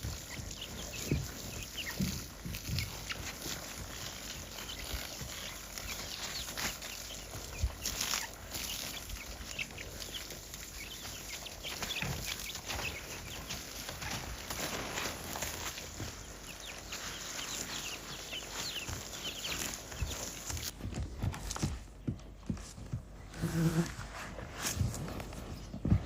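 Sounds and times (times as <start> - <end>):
soft low thumps: 24.8 - 26.0.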